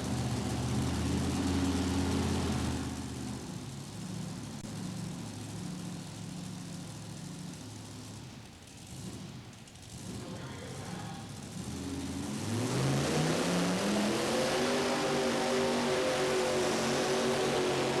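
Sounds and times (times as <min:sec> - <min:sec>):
tractor engine running: 0:00.0 - 0:08.8.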